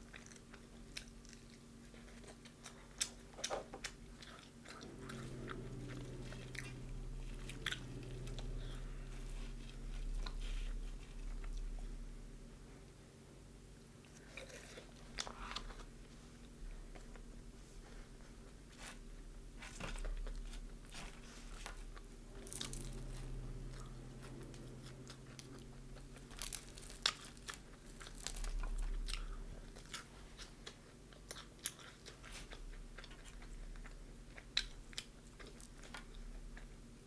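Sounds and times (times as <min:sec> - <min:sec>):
soft chewing: 0:00.0 - 0:13.0, 0:13.7 - 0:37.0
crunching fried chicken: 0:18.8 - 0:36.8.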